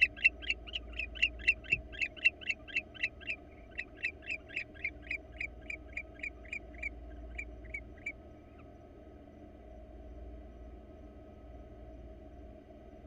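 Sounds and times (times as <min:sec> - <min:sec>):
owl twittering calls: 0:00.0 - 0:08.2.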